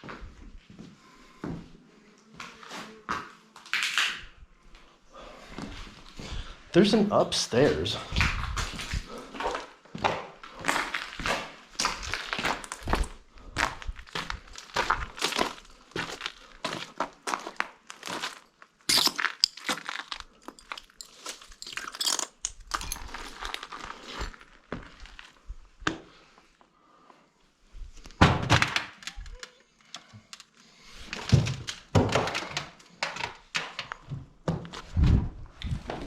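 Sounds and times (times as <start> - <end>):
footsteps crunching over debris: 7.6 - 25.8.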